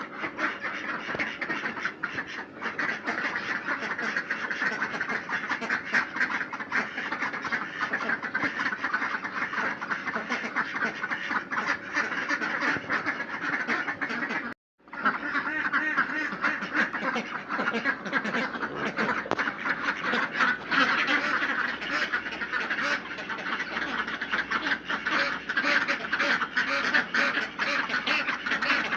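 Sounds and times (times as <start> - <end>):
ducks quacking: 0.0 - 28.9.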